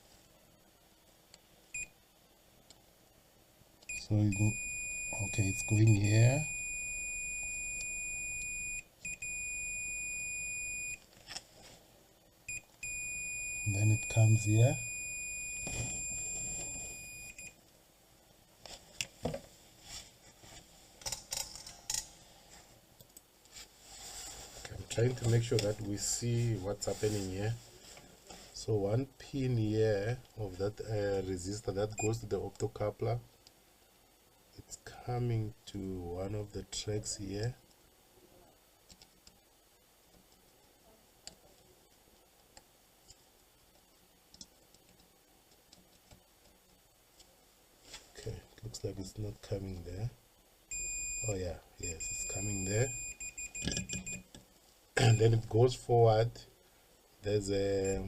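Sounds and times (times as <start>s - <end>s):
multimeter continuity beep: 1.8s - 2.0s, 3.9s - 11.0s, 12.5s - 17.6s, 32.0s - 32.2s, 50.7s - 54.3s, 57.8s - 58.0s
test probes tapping circuit board: 53.2s - 54.4s.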